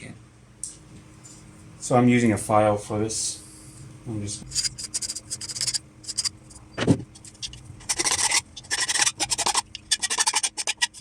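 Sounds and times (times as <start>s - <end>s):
file rasping on plastic pipe: 4.4s - 6.3s, 7.4s - 11.0s.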